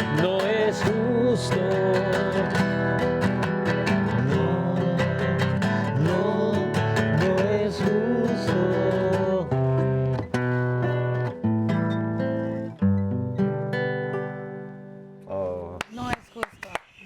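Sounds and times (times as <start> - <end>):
strummed acoustic guitar: 0.0 - 15.5.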